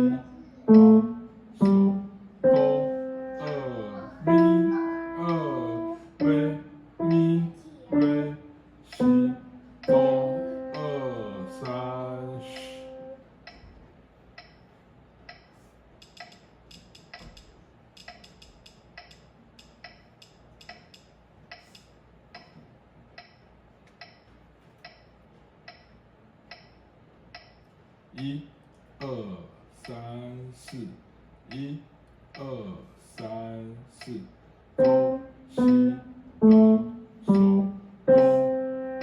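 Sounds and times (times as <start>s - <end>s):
piano notes and chords: 0.0s - 13.2s, 34.8s - 39.0s
metronome clicking: 0.7s - 3.7s, 4.3s - 8.3s, 8.9s - 13.6s, 14.4s - 14.6s, 15.3s - 22.6s, 23.2s - 23.4s, 24.0s - 25.1s, 26.5s - 27.6s, 34.8s - 39.0s.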